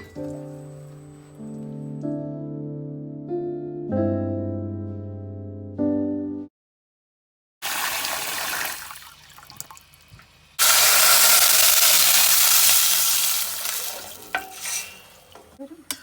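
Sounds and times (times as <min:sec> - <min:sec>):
piano music: 0:00.0 - 0:06.5
tap running water: 0:07.6 - 0:15.6.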